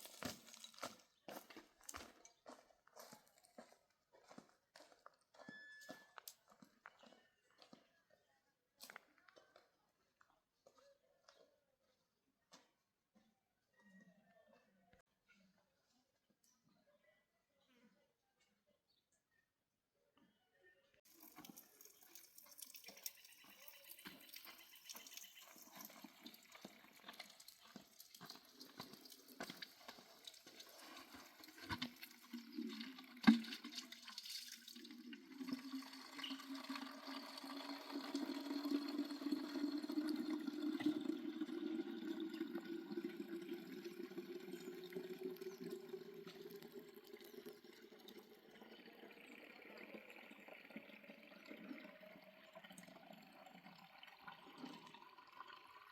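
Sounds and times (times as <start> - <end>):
water filling a container: 0.0 - 1.0, 21.1 - 55.9.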